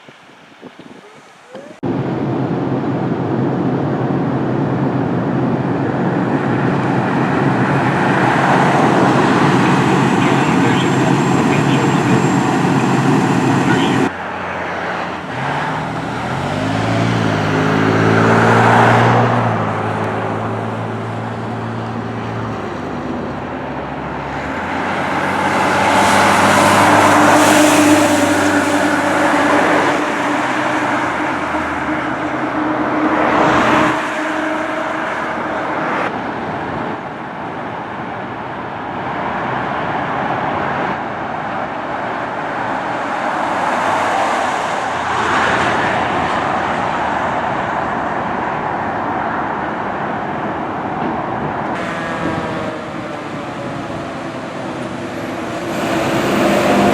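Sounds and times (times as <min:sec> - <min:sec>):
vehicles driving past: 0:00.1 - 0:56.9
heavy engine droning: 0:06.6 - 0:36.9, 0:51.0 - 0:56.9.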